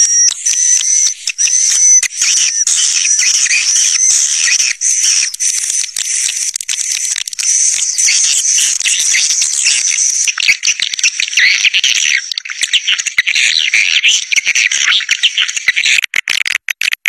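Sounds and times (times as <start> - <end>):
swiftlets twittering: 0.0 - 10.4.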